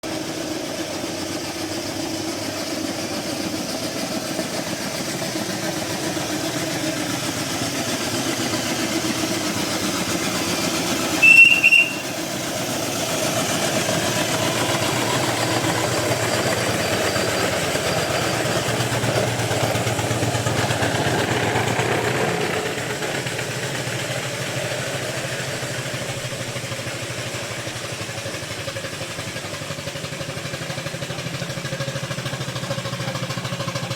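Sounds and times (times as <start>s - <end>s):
miniature steam engines running: 0.0s - 33.9s
short high steam whistle: 11.1s - 12.4s.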